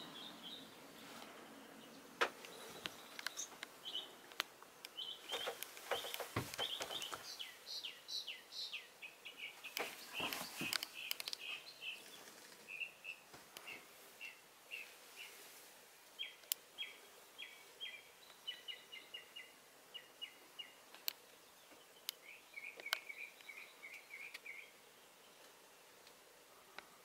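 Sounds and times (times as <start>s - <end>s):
songbirds chirping: 0.0s - 27.0s
sharp clicks and knocks: 5.3s - 7.3s.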